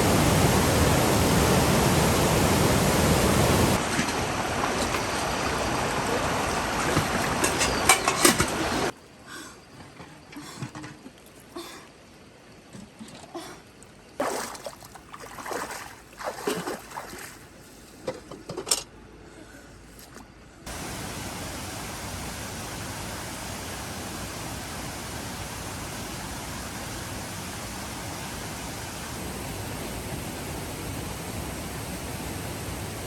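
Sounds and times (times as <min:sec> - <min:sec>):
water rushing: 0:00.0 - 0:08.9, 0:14.2 - 0:17.4, 0:20.7 - 0:33.0.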